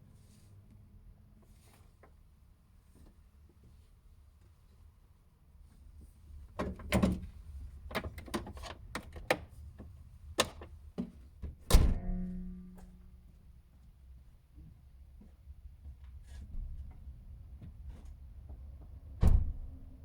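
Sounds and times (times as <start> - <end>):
low steady rumble: 11.6 - 14.2.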